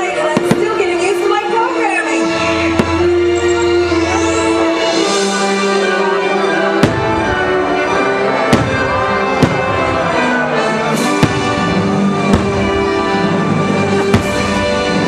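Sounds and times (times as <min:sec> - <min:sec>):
orchestral music: 0:00.0 - 0:15.0
fireworks bangs: 0:00.1 - 0:01.3, 0:02.7 - 0:03.4, 0:06.7 - 0:15.0.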